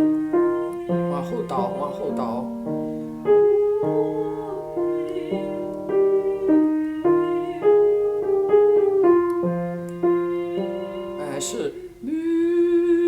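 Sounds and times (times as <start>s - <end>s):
piano chords: 0.0s - 13.0s
person singing vocal exercise: 10.0s - 13.0s.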